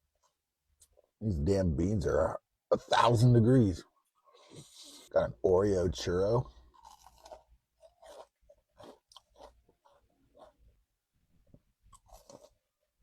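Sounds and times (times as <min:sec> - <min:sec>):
chewing and crunching: 0:06.0 - 0:13.0.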